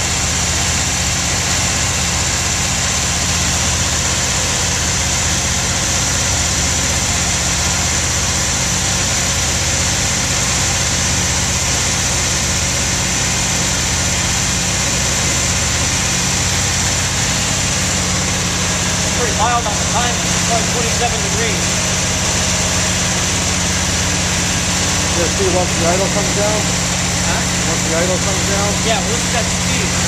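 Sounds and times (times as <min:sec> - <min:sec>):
car engine fast idle: 0:00.0 - 0:30.0.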